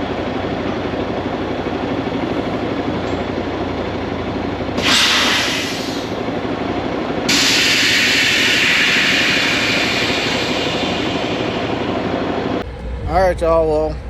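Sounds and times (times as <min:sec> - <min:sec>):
truck diesel engine idling: 0:00.0 - 0:14.0
air hissing: 0:04.8 - 0:06.3, 0:07.3 - 0:12.1.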